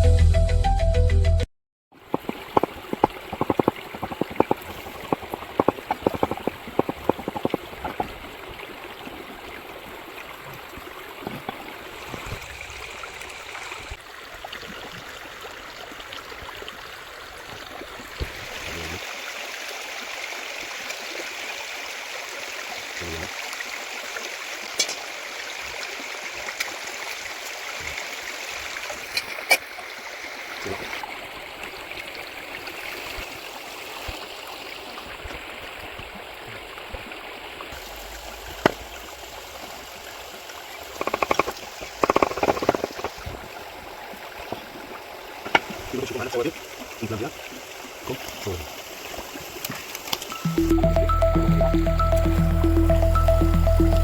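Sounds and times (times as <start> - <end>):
stream babbling and gurgling: 1.9 - 54.0
sharp clicks or taps: 41.0 - 43.2.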